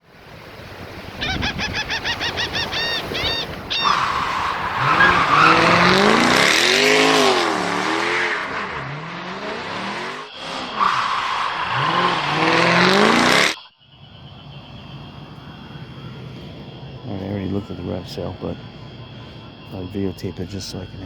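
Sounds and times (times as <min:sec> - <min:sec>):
vehicle engine revving: 0:03.5 - 0:21.0.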